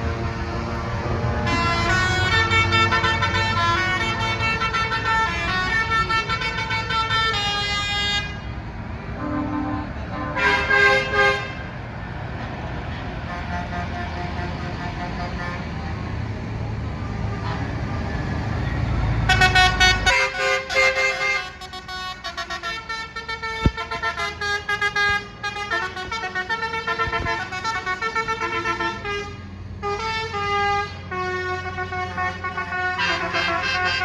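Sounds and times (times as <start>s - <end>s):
lorry horns tooting: 0.0s - 8.5s, 9.1s - 11.7s, 19.2s - 34.0s
diesel engines rumbling: 0.0s - 34.0s.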